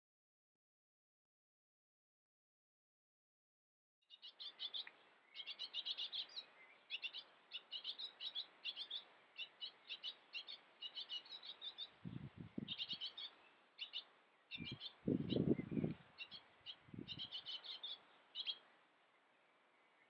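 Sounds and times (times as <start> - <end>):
small birds chirping: 4.1 - 20.0.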